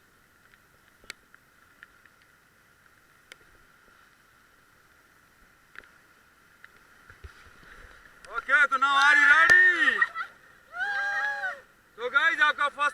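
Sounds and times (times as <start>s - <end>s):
faint steady hiss: 0.0s - 12.9s.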